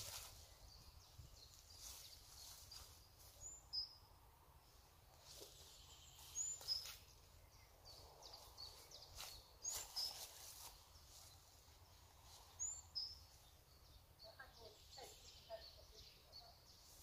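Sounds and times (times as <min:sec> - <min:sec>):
faint rustles and clicks: 0:00.0 - 0:00.6, 0:08.4 - 0:12.7.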